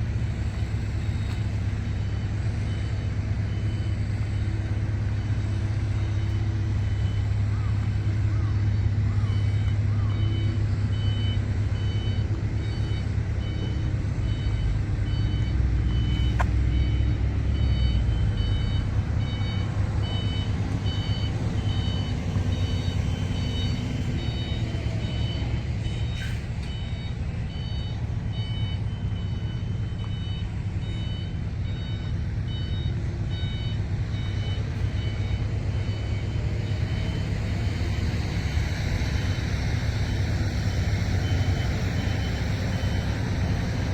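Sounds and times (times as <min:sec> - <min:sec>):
diesel engine running: 0:00.0 - 0:43.9
high warning beeps: 0:00.5 - 0:38.0, 0:40.0 - 0:43.7.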